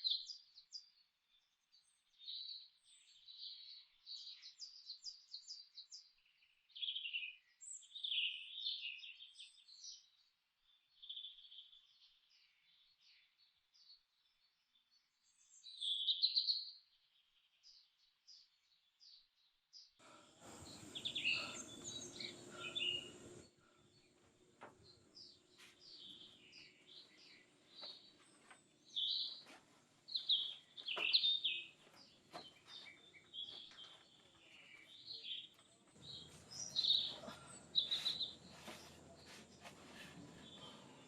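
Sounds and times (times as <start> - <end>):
forest birds chirping: 0.0 - 41.0
broad hiss: 20.0 - 23.4.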